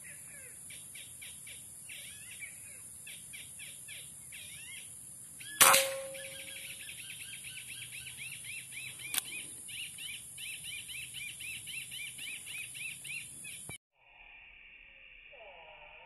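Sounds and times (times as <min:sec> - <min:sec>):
bird chirps: 0:00.4 - 0:13.7
sharp crack: 0:05.6 - 0:06.6
insect hiss: 0:09.2 - 0:16.0.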